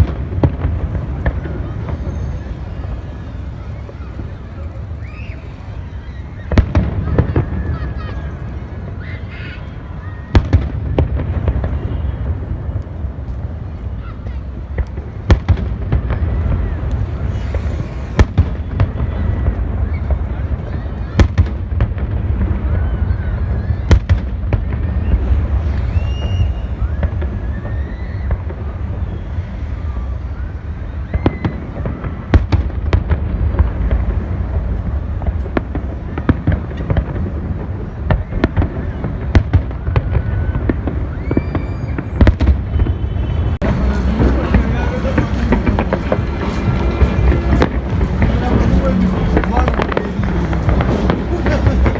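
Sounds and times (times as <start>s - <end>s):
loud firework bangs: 0.0s - 5.7s, 6.3s - 51.9s
firework pops and crackles: 10.3s - 29.3s, 31.1s - 51.9s
steady low rumble: 43.5s - 51.9s.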